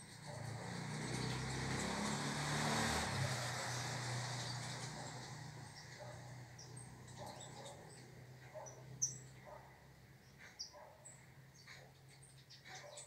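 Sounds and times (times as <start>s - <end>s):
small birds chirping: 4.4s - 13.0s.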